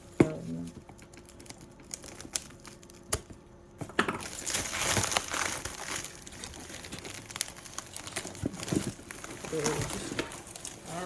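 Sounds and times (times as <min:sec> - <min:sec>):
tape and cardboard ripping: 0:04.0 - 0:11.0.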